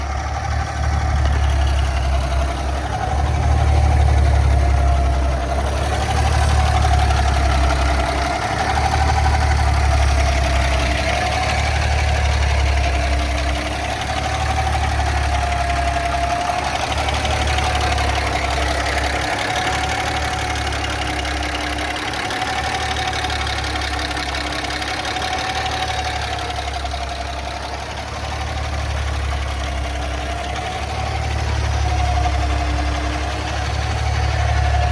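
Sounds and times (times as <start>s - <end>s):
truck engine idling: 0.0s - 34.9s.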